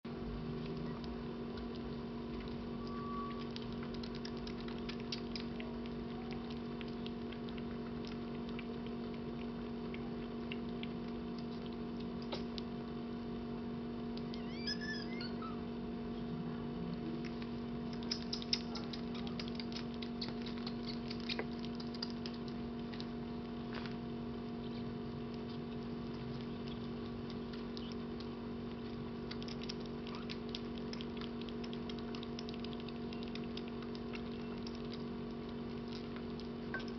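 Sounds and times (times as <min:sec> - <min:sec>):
kittens suckling from a bottle: 0:00.2 - 0:15.9, 0:16.9 - 0:36.9
kitten squeak: 0:02.8 - 0:03.5, 0:14.2 - 0:15.6, 0:17.9 - 0:21.5, 0:29.6 - 0:30.4.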